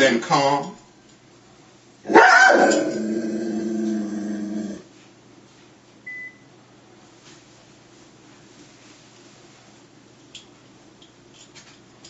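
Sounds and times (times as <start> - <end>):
dog growling: 2.1 - 4.9.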